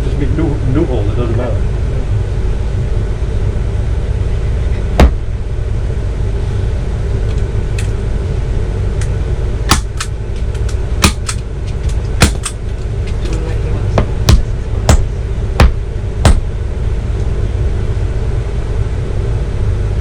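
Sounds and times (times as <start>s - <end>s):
steady low rumble: 0.0s - 20.0s
hammer strikes on board: 5.0s - 5.3s, 9.7s - 10.1s, 11.0s - 11.4s, 12.2s - 12.6s, 14.0s - 16.5s.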